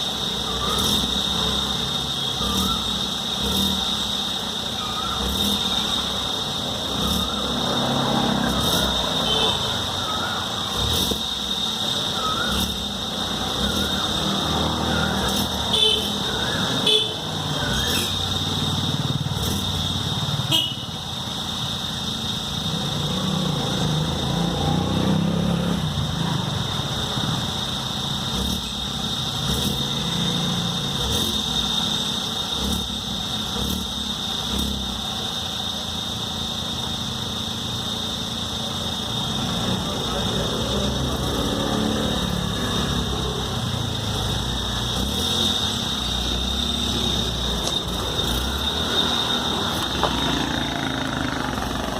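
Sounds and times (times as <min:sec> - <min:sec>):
steady high-pitched tone: 0:00.0 - 0:19.3
car engine running: 0:00.0 - 0:25.0, 0:25.7 - 0:51.9.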